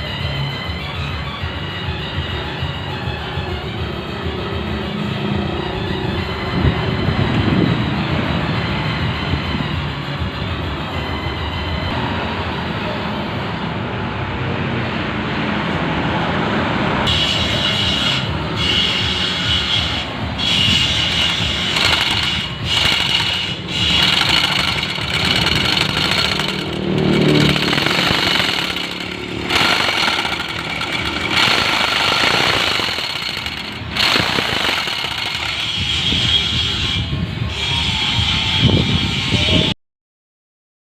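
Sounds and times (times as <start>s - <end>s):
jigsaw cutting plywood: 21.1s - 35.9s.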